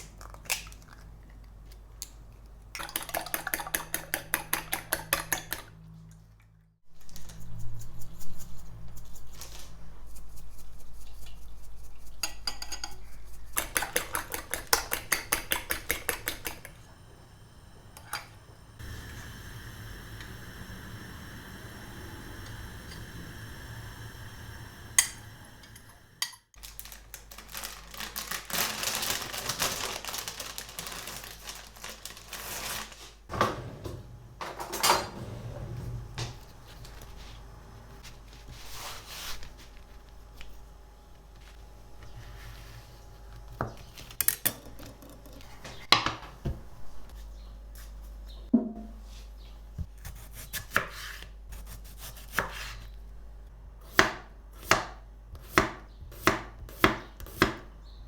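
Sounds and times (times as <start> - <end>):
dishes and cutlery clinking: 12.2 - 13.0.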